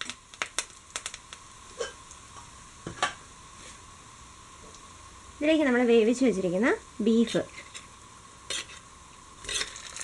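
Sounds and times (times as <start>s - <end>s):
food sizzling in oil: 4.8s - 10.0s
spatula scraping a pan: 8.5s - 9.8s.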